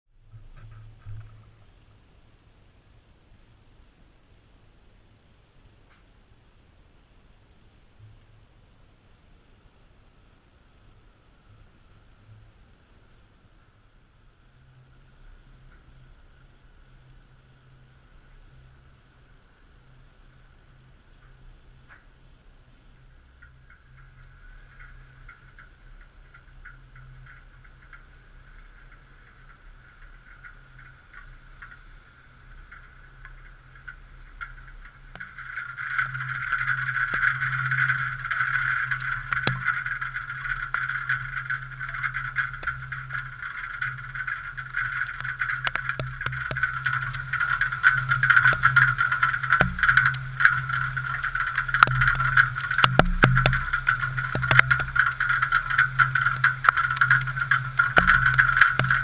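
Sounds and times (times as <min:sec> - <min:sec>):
muffled rushing wind and rain: 0:00.1 - 0:59.0
ticks and knocks: 0:32.6 - 0:59.0.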